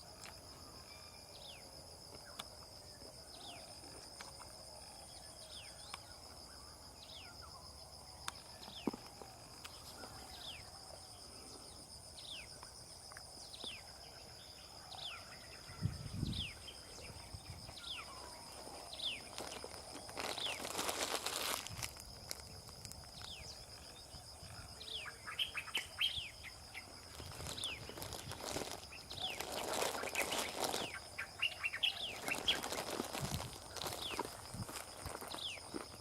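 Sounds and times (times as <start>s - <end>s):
pulsing insect trill: 0.0s - 36.0s
rustle: 15.6s - 36.0s.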